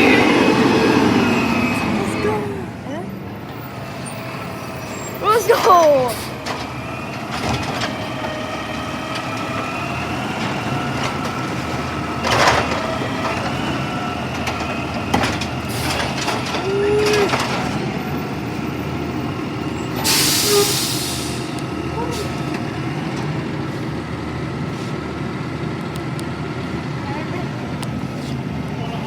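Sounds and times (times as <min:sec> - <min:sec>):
garbage truck engine running: 0:00.0 - 0:29.0.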